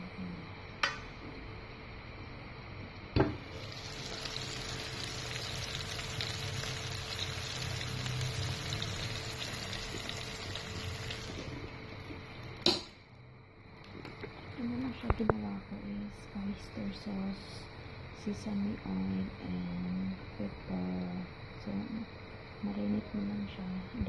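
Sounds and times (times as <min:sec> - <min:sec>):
meat sizzling in a pan: 0:03.5 - 0:11.7.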